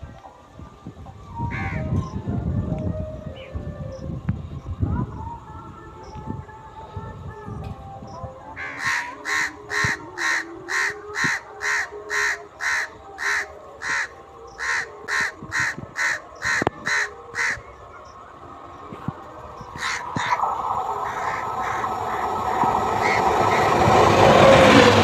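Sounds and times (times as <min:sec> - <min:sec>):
crow cawing: 0:08.6 - 0:17.6, 0:19.8 - 0:20.4, 0:21.0 - 0:23.8.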